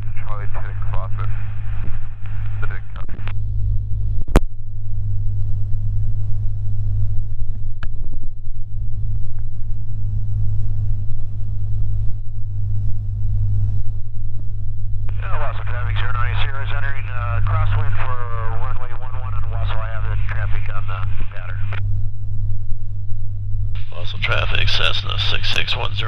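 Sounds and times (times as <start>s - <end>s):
airplane engine and propeller droning: 0.0s - 26.0s.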